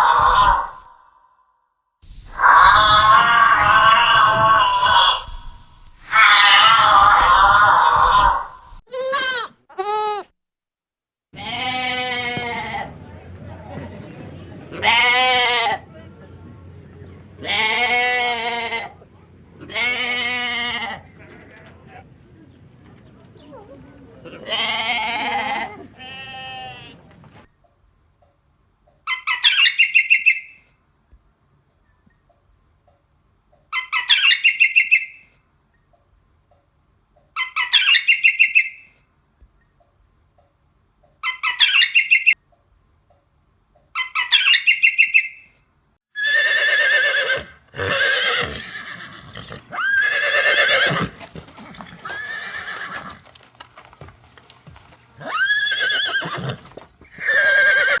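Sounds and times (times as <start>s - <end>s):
horse whinnying: 46.2s - 53.2s, 55.2s - 58.0s.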